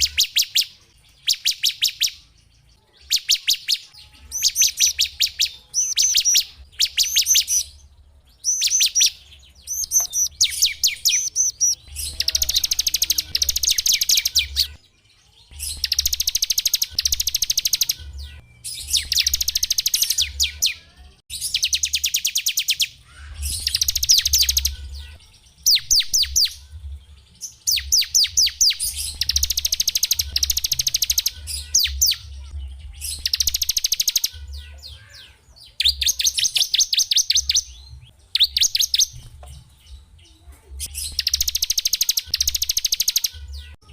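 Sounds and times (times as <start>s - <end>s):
songbirds trilling: 0.0s - 43.9s.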